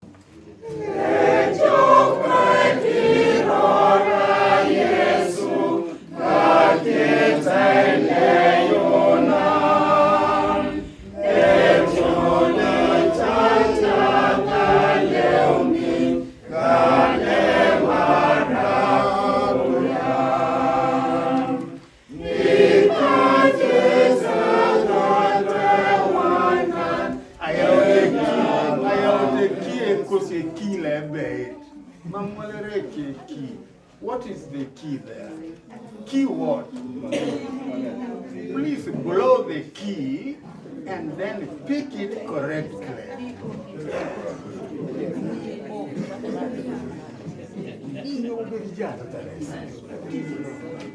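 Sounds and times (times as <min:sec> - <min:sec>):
choir singing unaccompanied: 0:00.6 - 0:31.6, 0:37.1 - 0:38.1.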